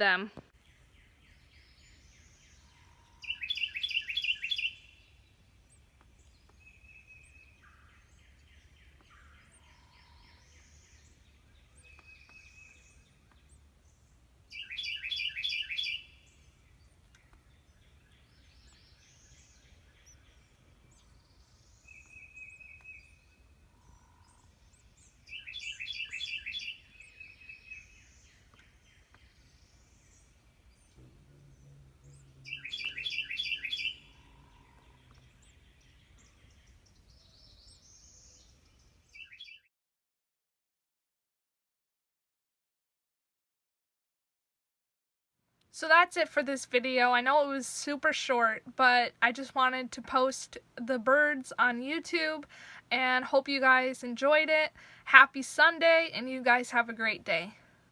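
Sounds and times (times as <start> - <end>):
wrens chirping rapid high notes: 14.5 - 16.3, 30.2 - 37.0.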